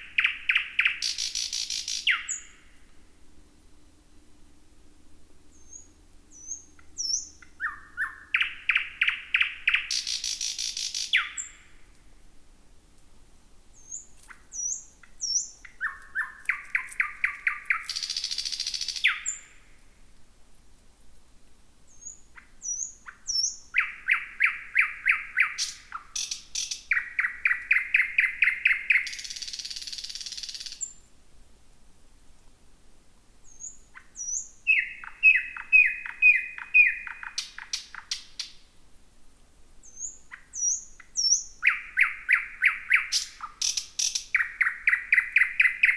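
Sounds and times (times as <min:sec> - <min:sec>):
nightingale singing: 0:00.0 - 0:02.8, 0:05.5 - 0:11.9, 0:13.7 - 0:19.7, 0:21.9 - 0:31.1, 0:33.4 - 0:38.7, 0:39.8 - 0:45.9.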